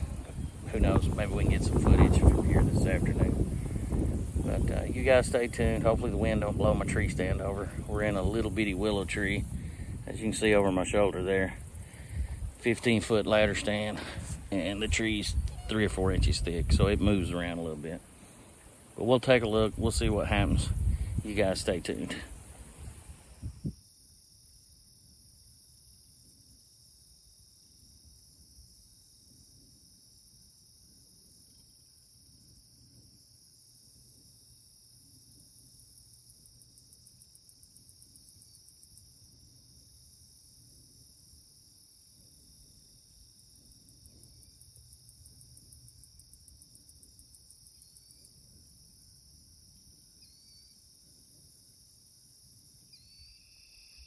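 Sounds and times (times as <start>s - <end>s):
low wind rumble on microphone: 0.0s - 12.7s, 13.3s - 17.3s, 19.6s - 23.8s
crickets and insects chorus: 0.0s - 54.0s
faint short chirps: 52.9s - 54.0s.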